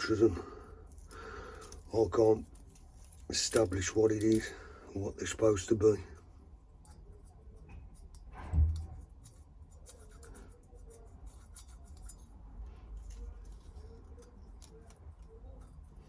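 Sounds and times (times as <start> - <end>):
short thump: 8.3 - 9.0.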